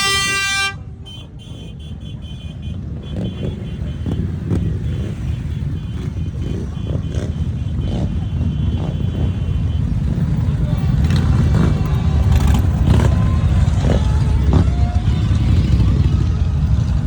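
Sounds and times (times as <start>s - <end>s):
motorcycle engines rumbling: 0.0s - 17.0s.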